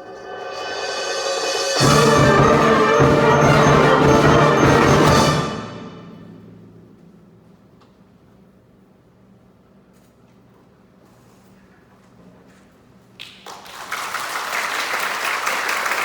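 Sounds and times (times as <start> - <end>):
timpani: 0.0 - 7.8
wind band playing: 0.2 - 6.4.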